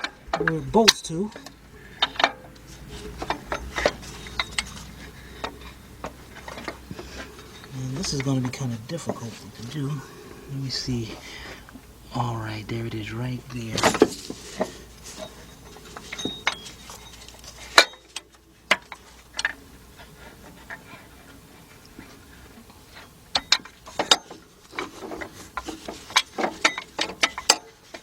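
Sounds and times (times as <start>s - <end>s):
metallic clicks and knocks: 0.0s - 9.4s, 23.0s - 28.0s.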